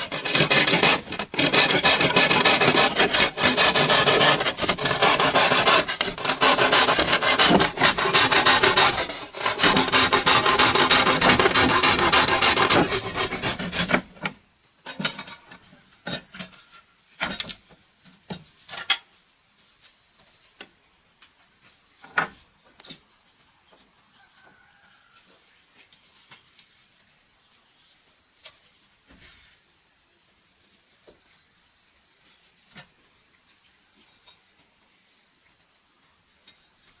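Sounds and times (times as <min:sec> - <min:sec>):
rasping strokes on wood: 0:00.0 - 0:14.3.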